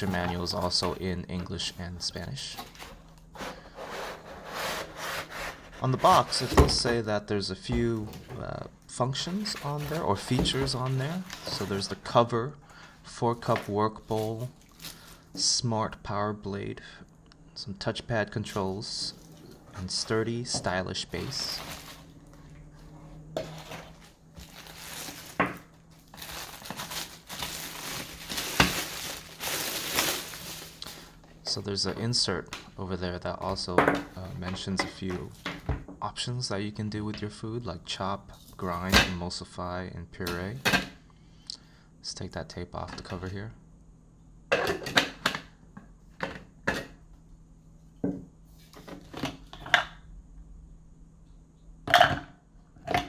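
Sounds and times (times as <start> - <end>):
packaging rustling and crinkling: 9.3 - 12.0, 13.4 - 15.3, 21.1 - 22.2, 23.4 - 31.3.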